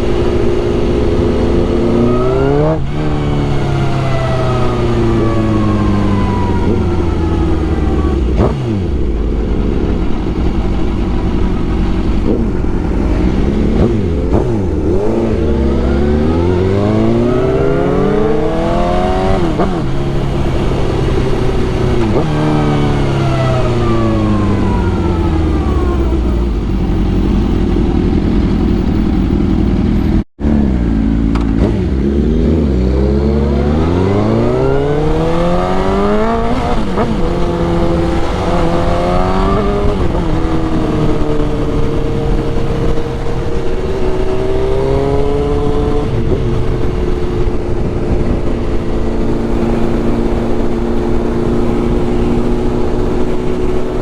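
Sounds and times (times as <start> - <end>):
motorcycle engine: 0.0 - 54.0
wind rush: 33.5 - 54.0.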